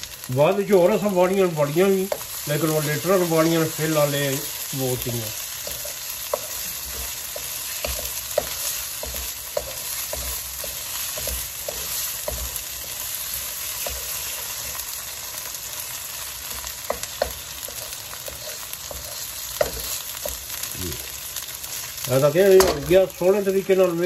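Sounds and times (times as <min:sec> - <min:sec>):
masala sizzling in a wok: 0:00.0 - 0:24.0
wooden spatula stirring and scraping: 0:00.6 - 0:24.0.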